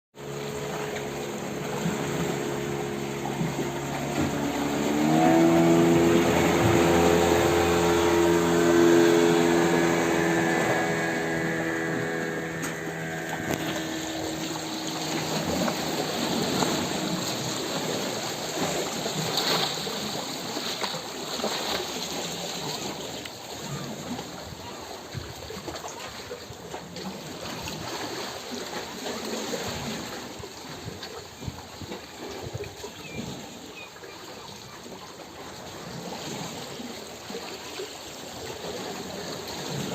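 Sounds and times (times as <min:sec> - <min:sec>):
motor engine running: 0:00.2 - 0:20.1
running water: 0:00.2 - 0:39.9.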